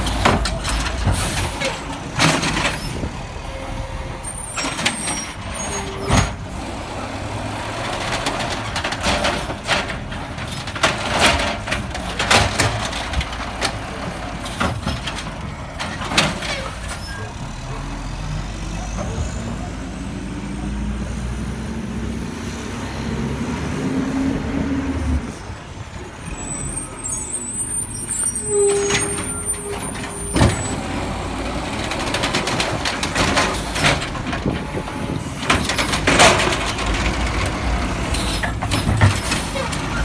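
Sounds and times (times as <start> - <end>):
garbage truck diesel engine running: 0.0 - 40.0
bangs and clanks: 7.8 - 17.3, 28.7 - 40.0.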